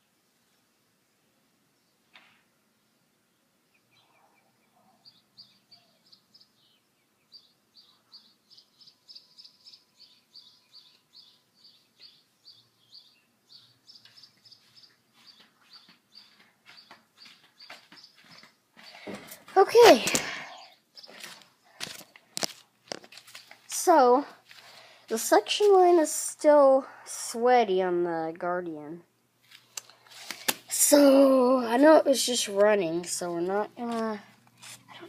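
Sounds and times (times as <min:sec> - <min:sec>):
faint bird chirping: 0:01.7 - 0:19.4, 0:20.4 - 0:21.7.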